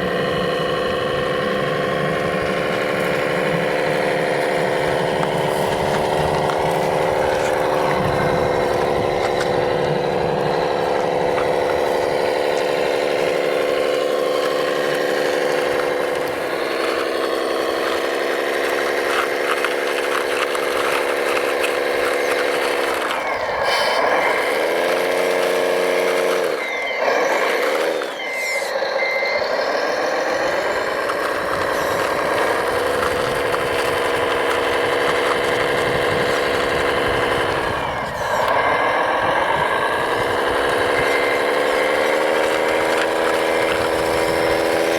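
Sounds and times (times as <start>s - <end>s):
toy truck engine running: 0.0s - 44.9s
short reversing beeps: 25.8s - 31.0s.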